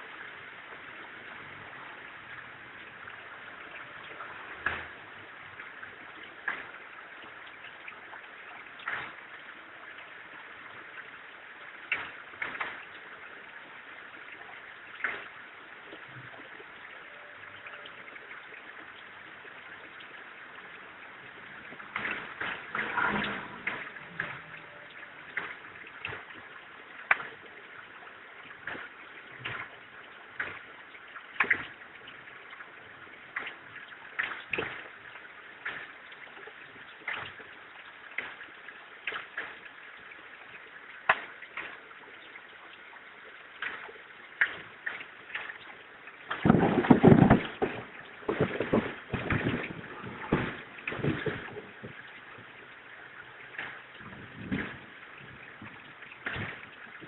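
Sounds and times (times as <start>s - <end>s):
sharp clicks and knocks: 8.8s - 9.3s, 11.9s - 13.0s, 21.7s - 26.4s, 27.1s - 27.5s, 28.6s - 30.8s, 31.4s - 31.8s, 35.6s - 36.0s, 43.6s - 52.5s, 53.5s - 54.9s, 55.6s - 56.8s.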